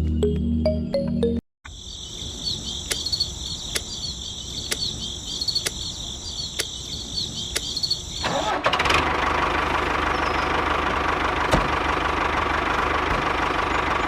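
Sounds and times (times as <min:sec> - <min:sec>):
insect trill with chirps: 0:01.7 - 0:08.4
sharp ticks: 0:02.8 - 0:05.9, 0:06.5 - 0:06.8, 0:07.5 - 0:08.0.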